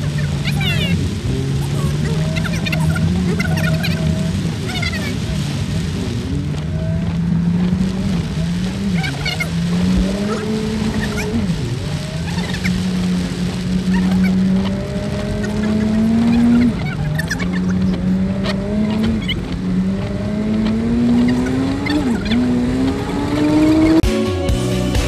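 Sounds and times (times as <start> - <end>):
car engine accelerating: 0.0 - 25.0
music: 24.0 - 25.0.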